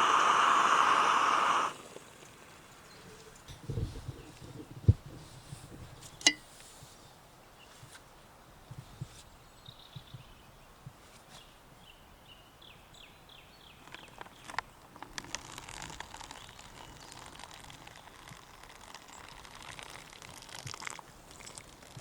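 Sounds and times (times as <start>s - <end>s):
hot water pouring into pouch: 0.0s - 2.6s, 15.1s - 22.0s.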